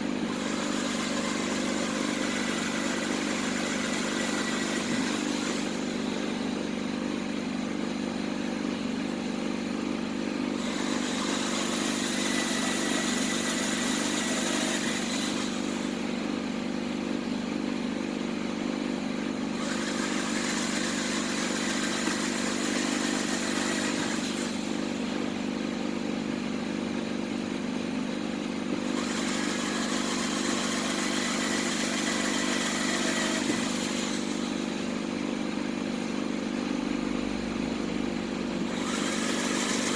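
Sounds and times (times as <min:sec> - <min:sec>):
motor humming: 0:28.8 - 0:39.9.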